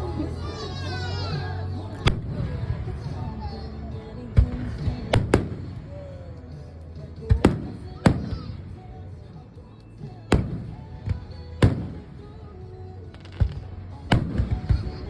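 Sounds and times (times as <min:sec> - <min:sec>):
faint fireworks pops: 0:04.4 - 0:06.0, 0:07.3 - 0:08.9, 0:10.3 - 0:12.4, 0:13.1 - 0:15.0
fireworks booming: 0:04.4 - 0:06.1, 0:07.3 - 0:08.9, 0:10.3 - 0:12.5, 0:13.1 - 0:15.0.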